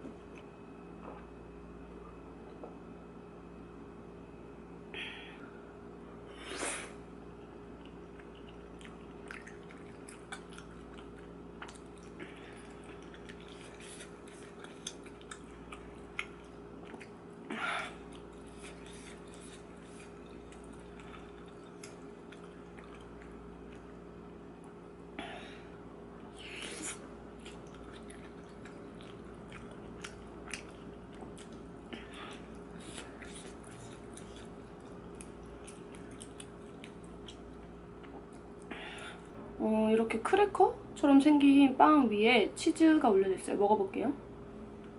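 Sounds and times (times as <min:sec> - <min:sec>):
steady low hum: 0:00.0 - 0:44.9
chewing and wet mouth sounds: 0:07.3 - 0:25.1, 0:26.2 - 0:39.3.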